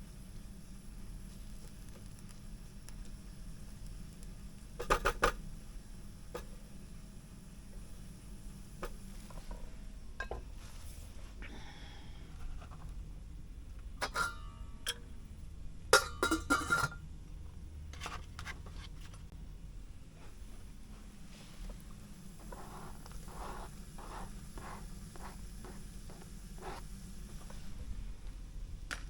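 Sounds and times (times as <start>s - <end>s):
low steady hum: 0.0s - 29.0s
cookware and utensils clinking: 14.0s - 15.1s, 16.0s - 17.1s.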